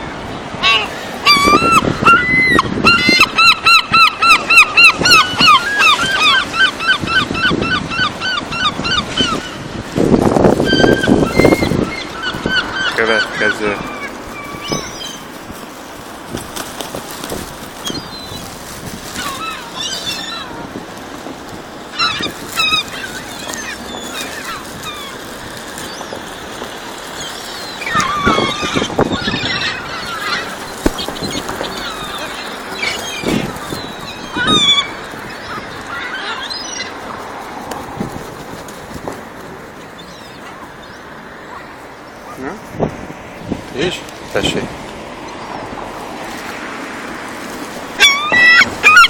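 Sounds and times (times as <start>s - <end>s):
gull yelping call: 0.6s - 9.6s, 10.6s - 15.2s, 21.9s - 25.2s, 27.7s - 37.0s, 48.0s - 49.0s.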